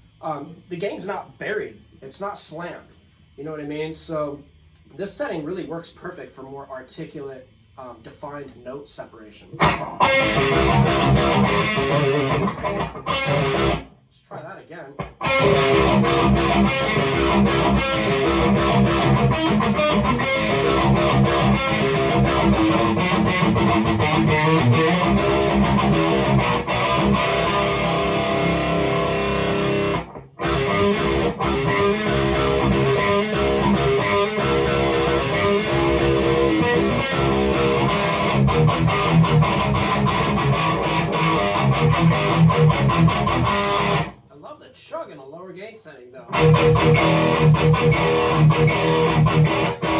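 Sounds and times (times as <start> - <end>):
distorted electric guitar riff: 9.4 - 44.2, 46.3 - 49.9.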